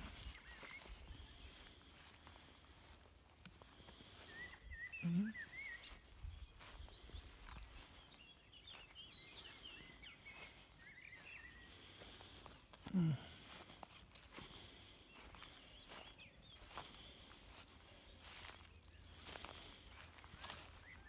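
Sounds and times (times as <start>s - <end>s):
small birds warbling: 0.0s - 21.0s
low call or grunt: 5.0s - 5.3s.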